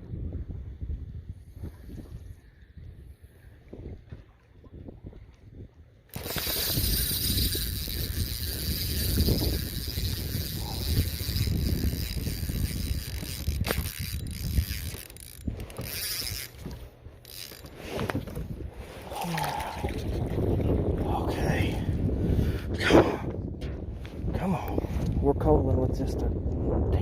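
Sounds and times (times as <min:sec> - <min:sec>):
fishing reel whirring: 0:06.1 - 0:18.4.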